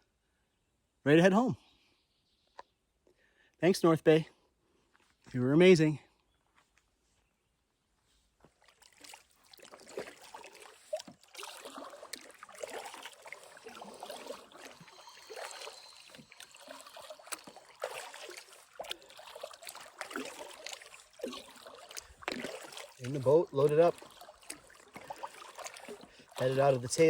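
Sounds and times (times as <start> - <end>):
paddle dipping into water: 8.4 - 27.0
water dripping off paddle: 8.6 - 27.0.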